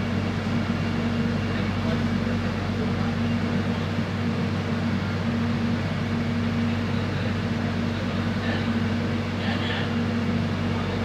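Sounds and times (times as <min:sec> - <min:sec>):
train rumble inside carriage: 0:00.0 - 0:11.0.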